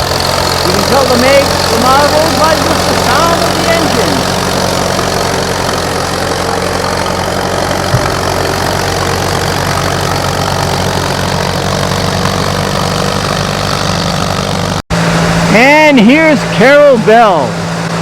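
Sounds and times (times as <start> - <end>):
tractor engine running: 0.0 - 18.0
short knock: 7.9 - 8.3.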